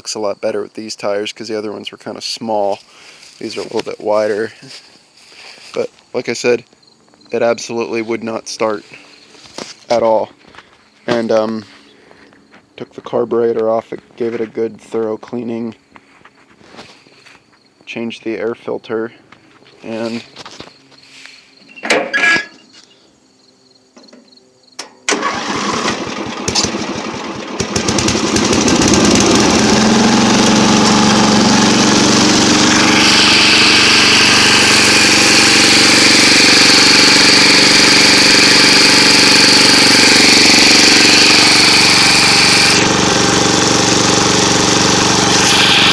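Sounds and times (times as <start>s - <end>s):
small engine cranking and running: 25.1s - 45.9s.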